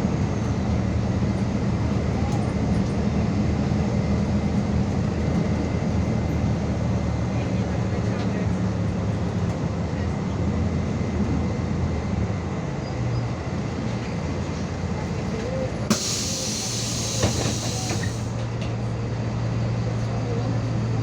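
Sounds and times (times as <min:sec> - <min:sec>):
bus engine drone: 0:00.0 - 0:21.0
road noise: 0:00.0 - 0:21.0
compressed air hiss: 0:15.9 - 0:18.3.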